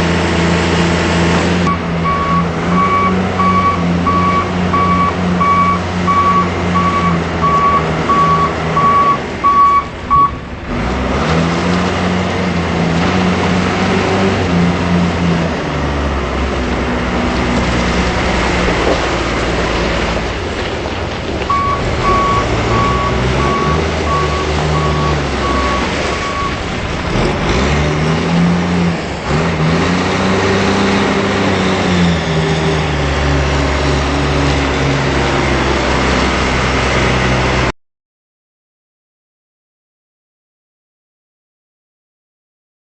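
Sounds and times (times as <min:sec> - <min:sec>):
diesel engine running under load: 0:00.0 - 0:37.7
reverse alarm beeping: 0:01.7 - 0:10.4, 0:21.5 - 0:26.6.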